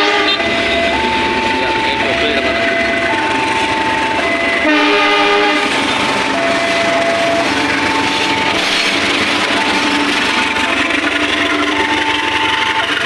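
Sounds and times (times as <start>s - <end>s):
train horn blast: 0.0s - 0.9s, 4.2s - 6.0s
locomotive and wheels rumbling: 0.0s - 13.0s
two-tone warning signal: 0.0s - 13.0s.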